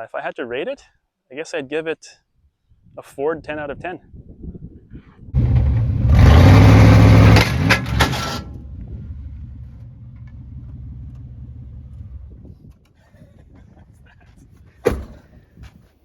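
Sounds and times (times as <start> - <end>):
truck engine revving: 5.4 - 12.5
exhaust cracks: 5.4 - 13.0.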